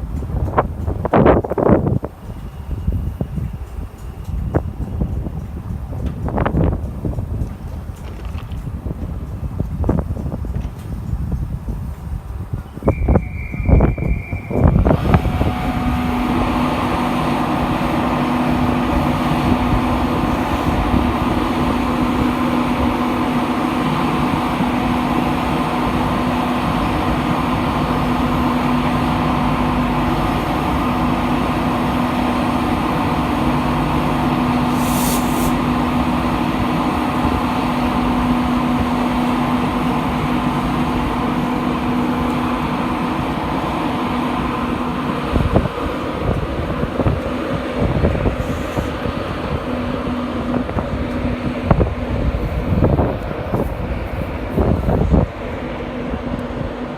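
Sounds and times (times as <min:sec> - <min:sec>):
train engine humming: 0:00.0 - 0:56.9
short hiss: 0:34.7 - 0:35.6.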